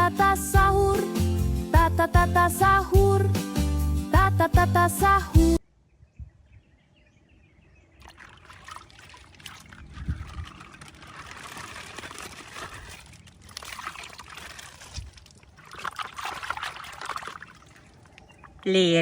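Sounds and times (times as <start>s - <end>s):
plastic bag crinkling: 10.5s - 13.6s.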